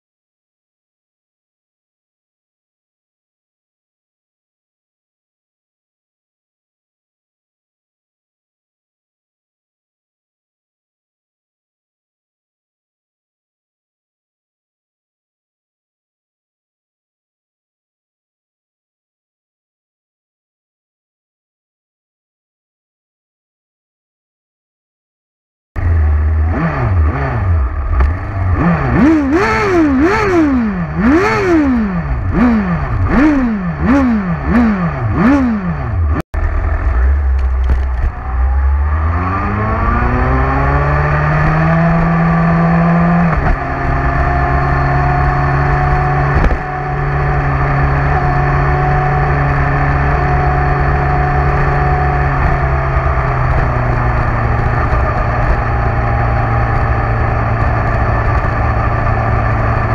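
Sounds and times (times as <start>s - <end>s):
motorcycle engine revving: 25.8s - 59.9s.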